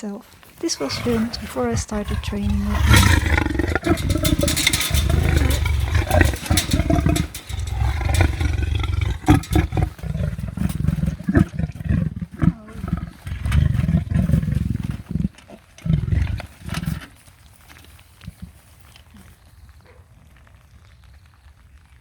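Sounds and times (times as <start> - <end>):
leopard growling: 0.4 - 17.2.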